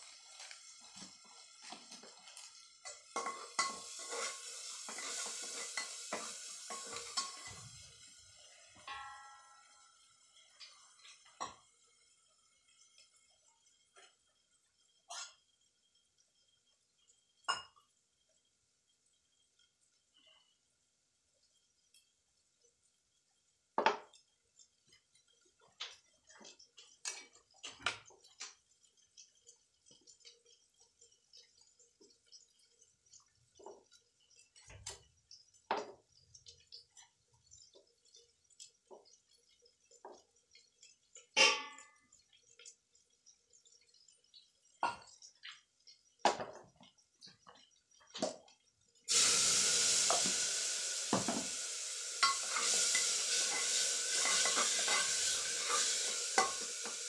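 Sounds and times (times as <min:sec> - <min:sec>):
food sizzling in a hot pot: 0:00.0 - 0:57.0
steel utensils clinking: 0:02.8 - 0:07.7, 0:52.1 - 0:57.0.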